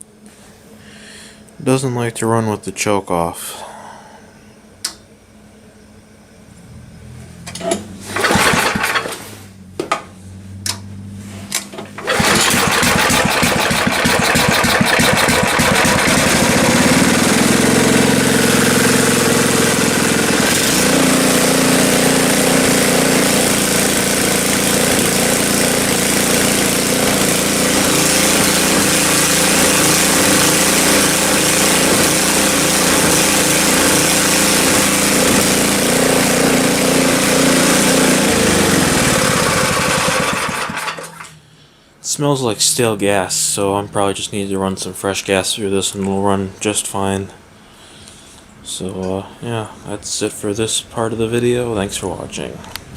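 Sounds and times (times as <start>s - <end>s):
recoil starter pulls: 7.5s - 9.3s, 11.5s - 41.4s
snowblower engine running: 8.0s - 9.3s, 11.8s - 41.3s.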